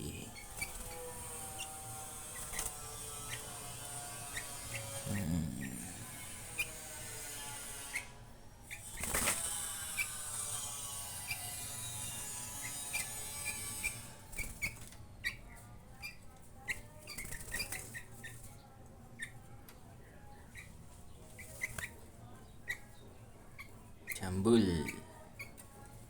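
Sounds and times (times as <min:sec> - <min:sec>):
bird chirping: 0:00.0 - 0:06.8
wings flapping: 0:00.3 - 0:05.0, 0:08.9 - 0:10.1.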